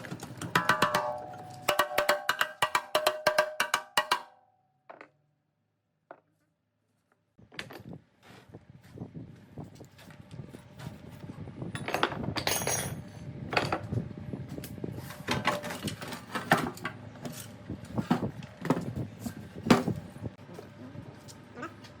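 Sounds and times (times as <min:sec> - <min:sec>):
metal tools knocking and clinking: 0:00.1 - 0:04.3, 0:11.8 - 0:13.8
short metallic ring: 0:00.7 - 0:02.1.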